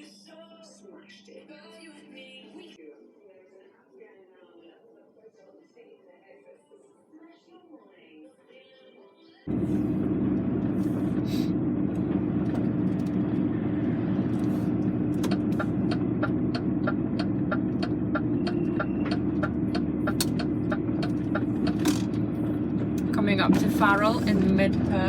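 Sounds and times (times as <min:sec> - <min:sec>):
diesel engine drone in cab: 0:09.5 - 0:25.0
road noise: 0:09.5 - 0:25.0.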